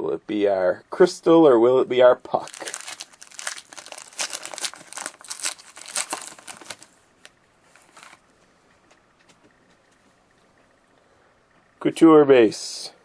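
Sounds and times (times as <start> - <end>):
wrapper tearing and crinkling: 2.4 - 8.2.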